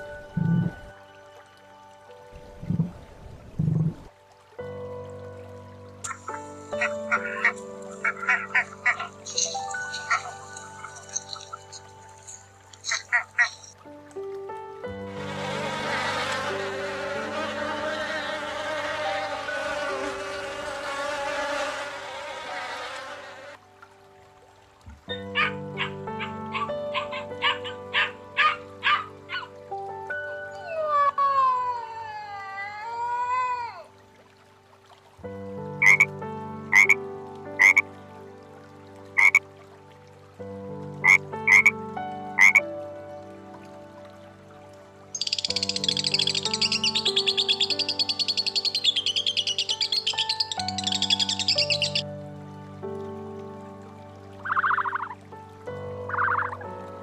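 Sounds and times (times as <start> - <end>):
soft background music: 0.0 - 57.0
insects buzzing: 5.6 - 14.0, 14.6 - 23.8, 35.2 - 39.4, 40.4 - 42.6, 44.3 - 52.4
frog croaking: 6.1 - 13.8, 25.1 - 29.6, 35.8 - 36.1, 36.7 - 37.0, 37.6 - 37.8, 39.2 - 39.4, 41.0 - 41.8, 42.4 - 42.6, 45.1 - 52.1, 54.4 - 55.2, 56.1 - 56.7.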